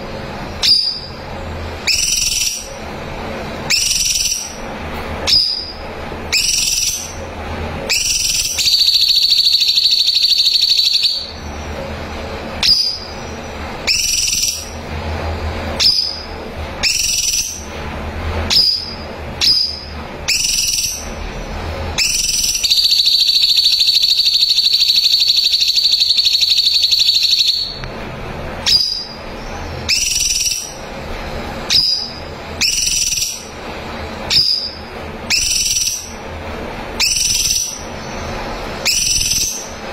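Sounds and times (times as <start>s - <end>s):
bird rapid high trill: 0.6s - 1.2s, 1.8s - 2.8s, 3.7s - 4.6s, 5.2s - 7.3s, 7.9s - 11.5s, 12.6s - 14.9s, 15.8s - 17.7s, 18.5s - 21.2s, 22.0s - 27.8s, 28.6s - 30.9s, 31.6s - 33.6s, 34.3s - 36.2s, 37.0s - 39.8s
bird whistling upward notes: 0.6s - 1.2s, 1.8s - 2.8s, 3.7s - 4.6s, 5.2s - 7.2s, 7.9s - 11.4s, 12.6s - 14.8s, 15.8s - 17.7s, 18.5s - 21.2s, 22.0s - 27.8s, 28.6s - 30.8s, 31.7s - 33.5s, 34.3s - 36.2s, 37.0s - 39.8s.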